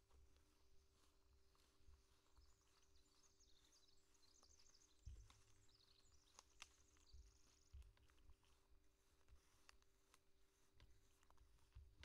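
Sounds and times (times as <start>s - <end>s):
songbird chirping and trilling: 0.4s - 9.7s.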